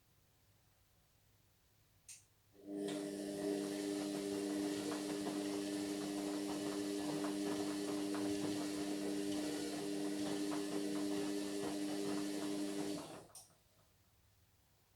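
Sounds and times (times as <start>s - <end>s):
washing machine motor hum: 2.6s - 13.4s.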